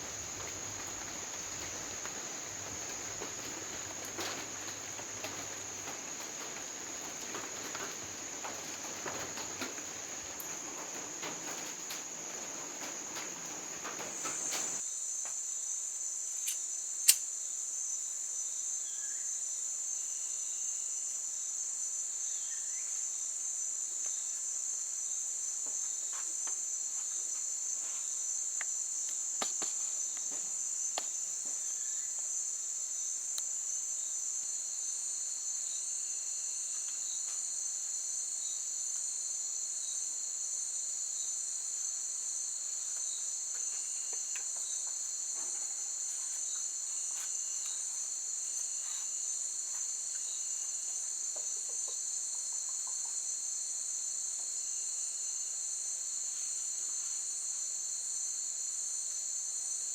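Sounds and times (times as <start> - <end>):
faint clicks: 0.0 - 14.8
insects chorus drone: 0.0 - 59.9.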